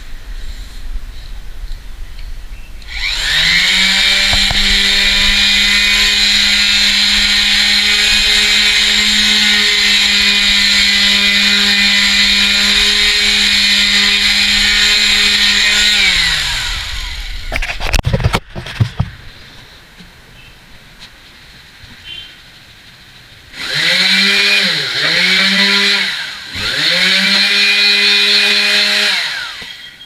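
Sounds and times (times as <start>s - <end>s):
vibrating sander motor: 2.9s - 19.1s, 23.6s - 30.0s.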